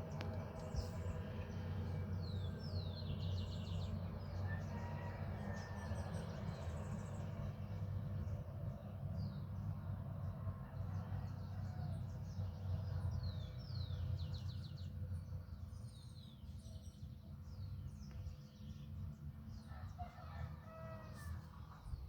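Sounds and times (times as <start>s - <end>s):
steady low rumble: 0.0s - 4.2s.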